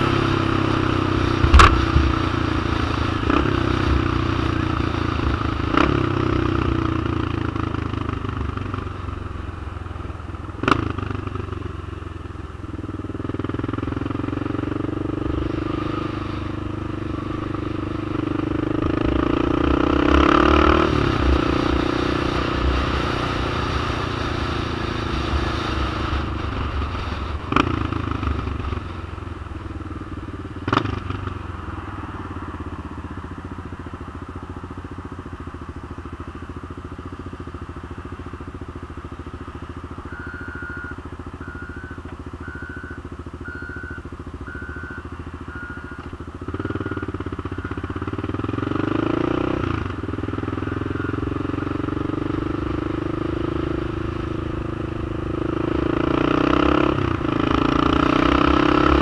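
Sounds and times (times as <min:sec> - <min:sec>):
trike engine running: 0:01.2 - 0:06.0
sharp clunks: 0:01.4 - 0:02.1
short high beep: 0:40.0 - 0:46.1, 0:50.5 - 0:51.4.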